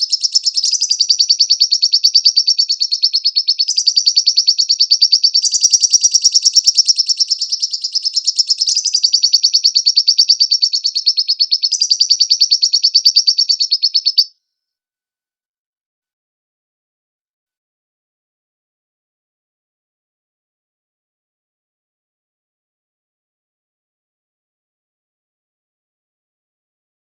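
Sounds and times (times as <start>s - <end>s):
lovebird chattering: 0.0s - 14.3s.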